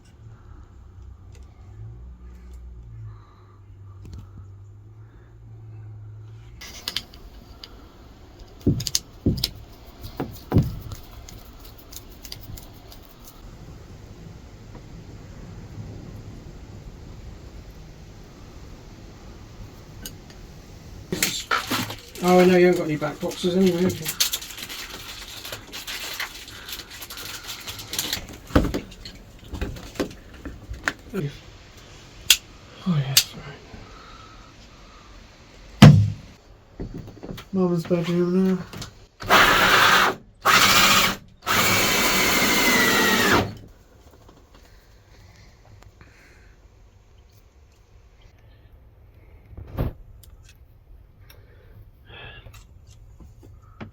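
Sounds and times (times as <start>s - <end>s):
rustling: 6.3s - 16.2s, 18.4s - 32.2s
light rattling and clicking: 6.6s - 13.4s
sharp knocks and heavy thumps: 8.5s - 11.2s, 35.8s - 37.4s
knock: 35.8s - 36.2s.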